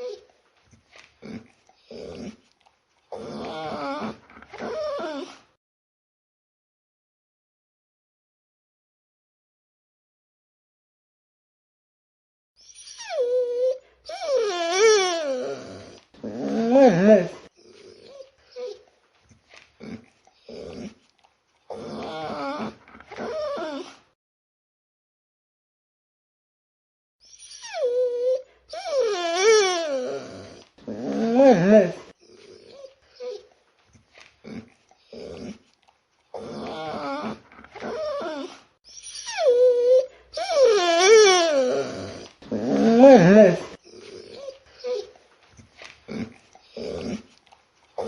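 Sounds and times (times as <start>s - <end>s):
dog whimpering and whining: 0.0s - 0.3s, 3.1s - 5.5s, 12.6s - 18.9s, 21.7s - 24.1s, 27.2s - 33.5s, 36.3s - 45.2s.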